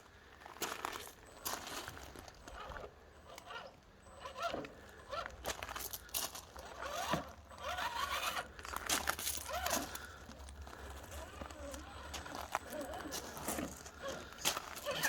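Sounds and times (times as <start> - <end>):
toy car motor whining: 2.4 - 10.0, 11.1 - 15.0
tyres scraping over rock: 6.6 - 10.2, 11.0 - 15.0.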